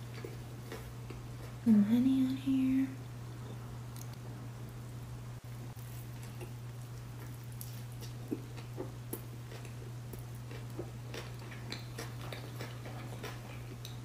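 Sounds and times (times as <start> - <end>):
chewing crunchy food: 0.0 - 1.6, 5.7 - 14.0
steady low hum: 0.0 - 14.0.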